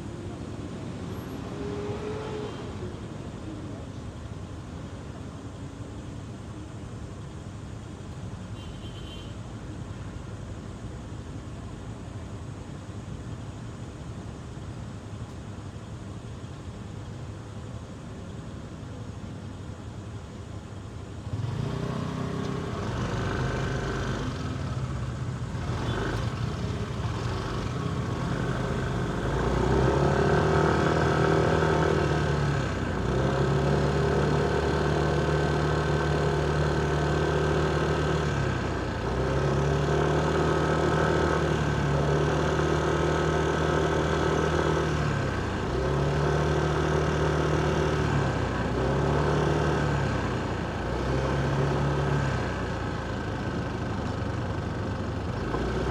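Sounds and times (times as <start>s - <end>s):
motorcycle engine revving: 21.3s - 55.9s.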